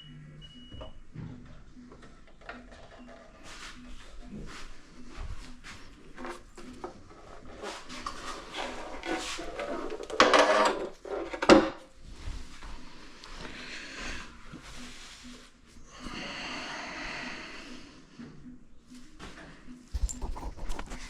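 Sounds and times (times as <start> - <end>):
scrape: 7.3 - 11.4
handling rubbing and clattering: 19.9 - 21.0.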